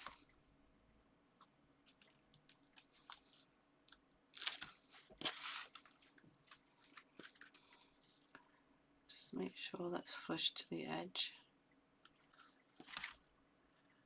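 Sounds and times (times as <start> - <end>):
paper rustling: 4.3 - 8.3, 12.3 - 13.2.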